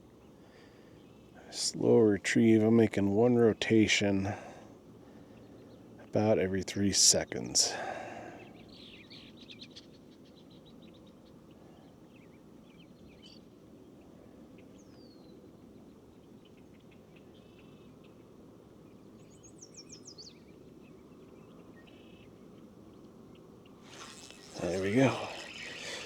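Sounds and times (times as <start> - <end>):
faint birdsong: 0.0 - 3.9, 4.5 - 26.0
low steady background noise: 0.0 - 26.0.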